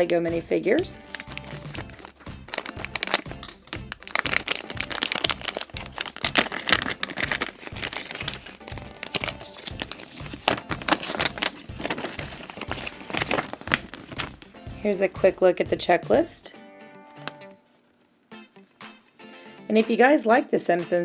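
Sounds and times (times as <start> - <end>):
plastic bag crinkling: 0.0 - 14.5
background music with steady beat: 0.0 - 17.6, 18.3 - 21.0.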